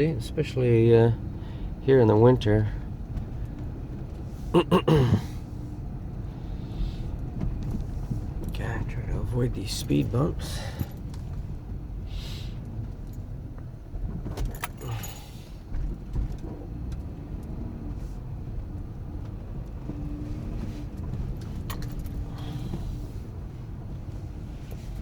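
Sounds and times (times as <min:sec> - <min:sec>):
engine and tyre rumble: 0:00.0 - 0:25.0
jangling and rattling: 0:14.1 - 0:16.7, 0:20.9 - 0:23.0.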